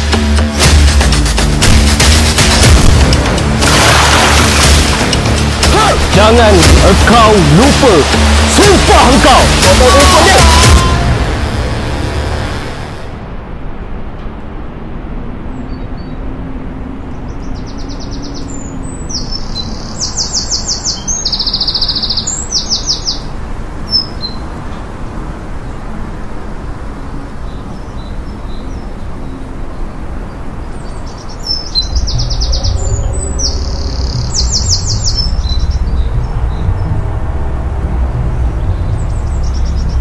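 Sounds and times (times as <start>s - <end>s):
bird singing high trills: 27.5s - 36.8s.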